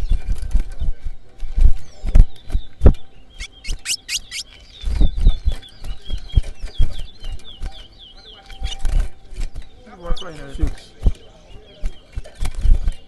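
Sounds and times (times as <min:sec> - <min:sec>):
finch chirping and whistling: 0:03.3 - 0:09.0.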